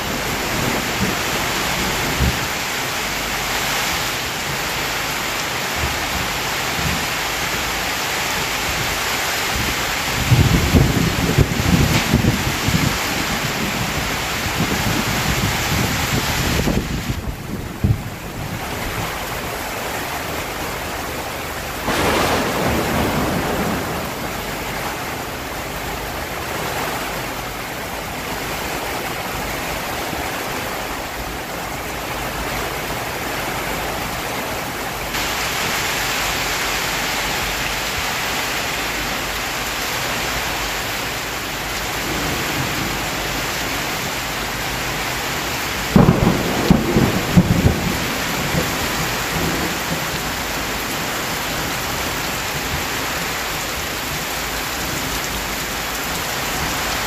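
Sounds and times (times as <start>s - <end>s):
thunder rolling: 0.0s - 3.1s, 9.5s - 21.0s, 21.6s - 27.3s, 45.7s - 51.7s
heavy rain: 0.0s - 57.0s
sharp thunder claps: 21.8s - 25.0s, 45.9s - 50.3s.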